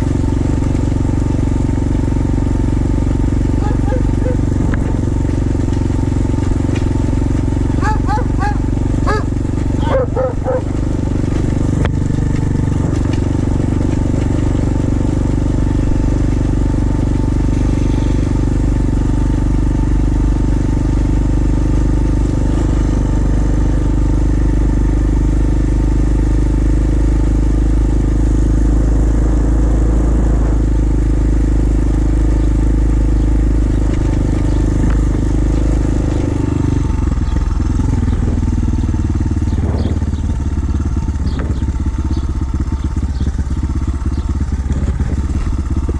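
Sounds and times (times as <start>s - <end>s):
small motorbike engine running: 0.0s - 45.9s
wind rumble on microphone: 3.6s - 5.6s, 27.7s - 45.9s.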